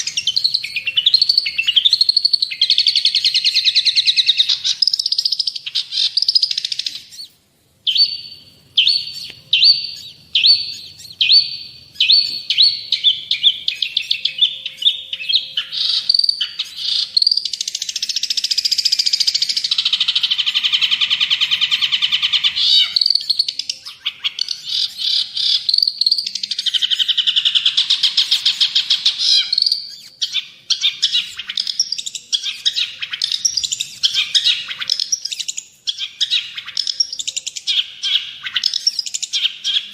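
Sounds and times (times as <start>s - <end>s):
fast bird trills: 0.0s - 39.9s
shrike singing: 0.0s - 39.9s.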